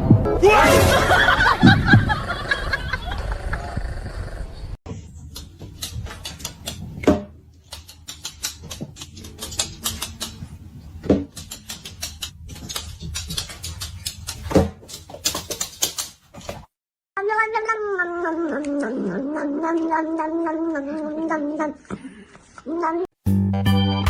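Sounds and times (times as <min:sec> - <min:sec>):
rapid clicking and tapping: 0:05.3 - 0:07.0, 0:07.6 - 0:10.5, 0:11.3 - 0:16.2.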